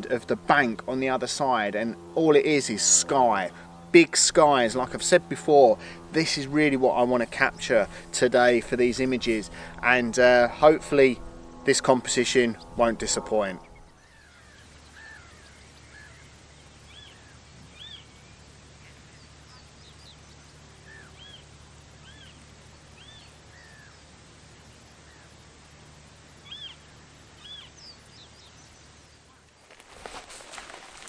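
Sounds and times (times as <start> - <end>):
steady low hum: 0.0 - 31.0
wild birds calling: 12.4 - 25.6, 26.2 - 31.0.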